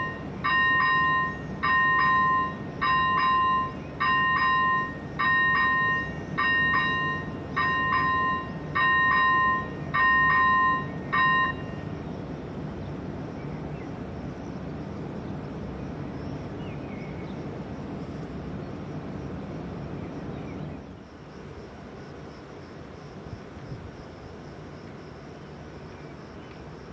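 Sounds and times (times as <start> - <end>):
level crossing warning bell: 0.0 - 12.0
train rumbling past: 0.0 - 21.3.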